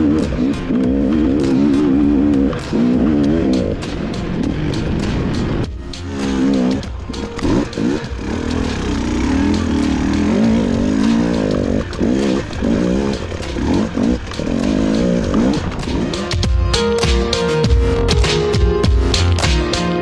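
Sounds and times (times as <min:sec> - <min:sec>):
motorcycle engine revving: 0:00.0 - 0:16.6.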